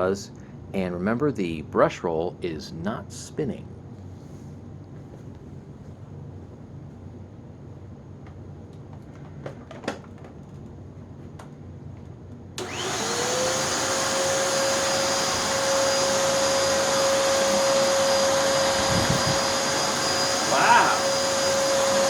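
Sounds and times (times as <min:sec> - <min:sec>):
vacuum cleaner motor whining: 0:12.6 - 0:22.0.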